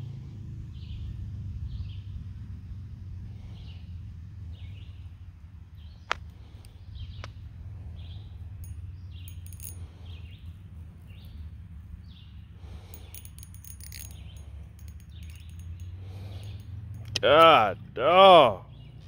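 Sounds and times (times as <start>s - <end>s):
bird chirping: 5.8s - 17.6s.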